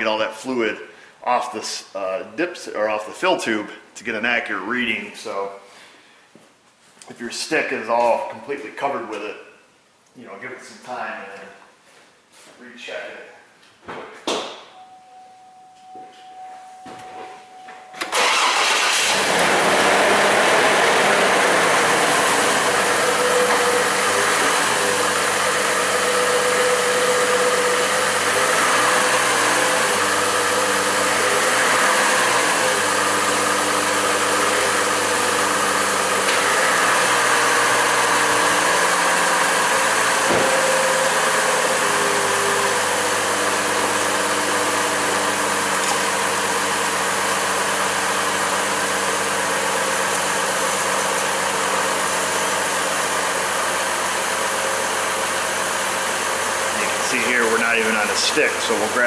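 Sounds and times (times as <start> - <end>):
car engine idling: 18.0 - 59.0.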